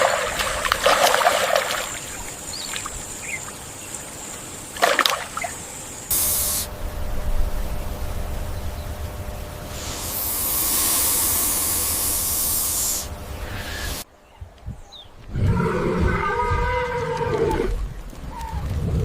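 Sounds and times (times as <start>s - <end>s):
loud hiss: 6.1s - 14.1s.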